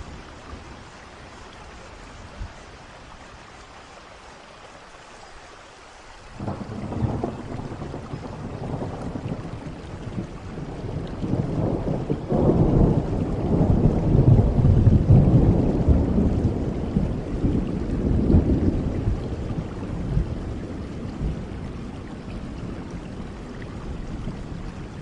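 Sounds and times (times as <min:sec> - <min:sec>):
steady rain falling: 0:00.0 - 0:25.0
thunder rumbling: 0:06.4 - 0:25.0.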